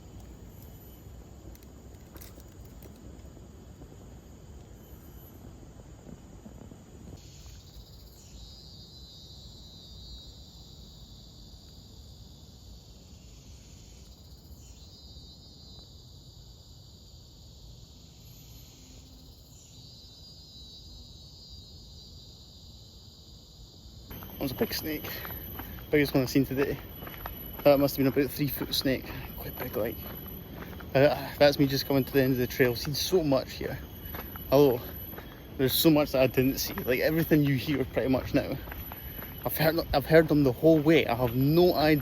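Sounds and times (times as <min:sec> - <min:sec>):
insects buzzing: 0:00.0 - 0:42.0.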